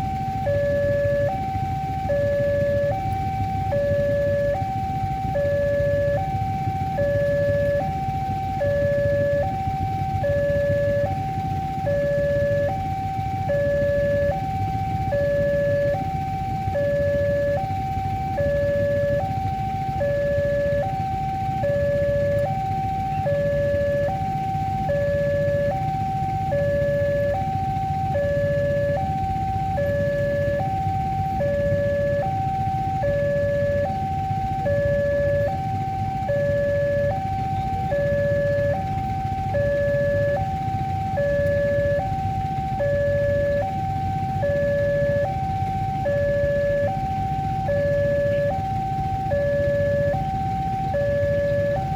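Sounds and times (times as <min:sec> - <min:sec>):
two-tone crossing alarm: 0:00.0 - 0:51.9.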